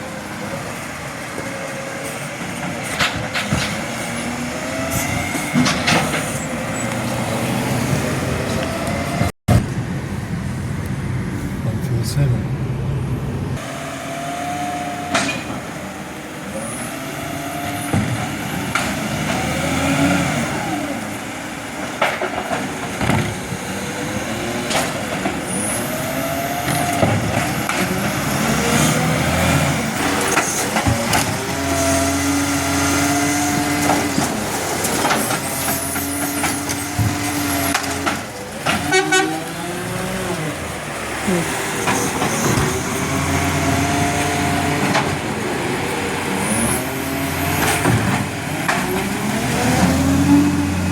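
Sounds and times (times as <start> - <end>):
garbage truck engine whining: 0.0 - 50.9
knocks and clanks: 2.4 - 4.1, 4.8 - 7.3, 15.1 - 15.7, 21.8 - 23.6, 26.6 - 28.3, 30.0 - 31.8, 33.0 - 39.4, 41.6 - 46.0, 47.5 - 49.2.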